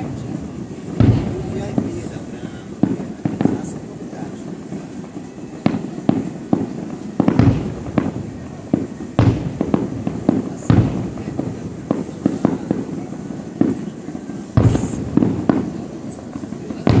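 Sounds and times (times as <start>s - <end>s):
fireworks bursting: 0.0s - 17.0s
heavy fireworks booms: 0.0s - 17.0s.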